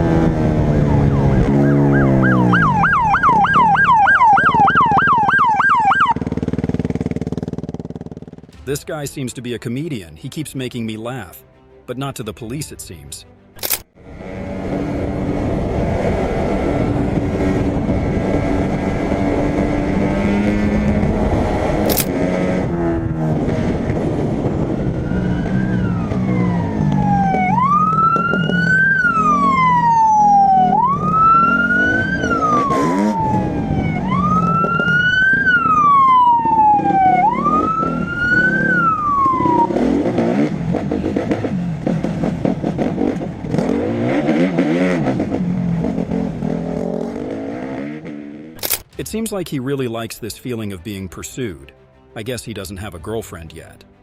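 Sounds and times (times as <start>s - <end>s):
police siren wailing: 0.0s - 6.3s, 24.3s - 40.1s
vehicle engine running: 6.0s - 8.8s.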